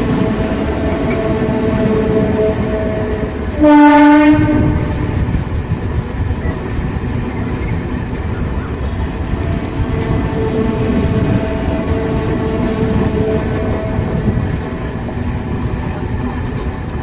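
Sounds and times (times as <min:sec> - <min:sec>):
train horn blast: 0:00.0 - 0:05.3, 0:08.8 - 0:14.6
train rumbling: 0:00.0 - 0:17.0.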